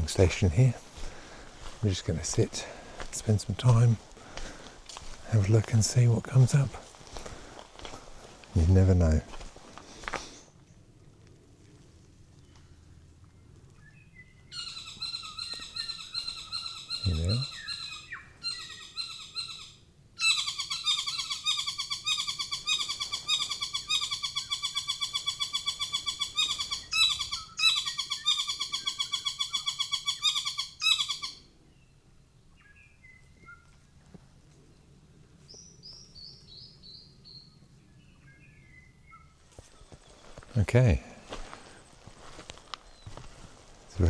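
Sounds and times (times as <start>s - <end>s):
bird calling repeated notes: 14.2s - 31.5s
soft bird chirps: 35.5s - 40.7s, 41.7s - 43.3s.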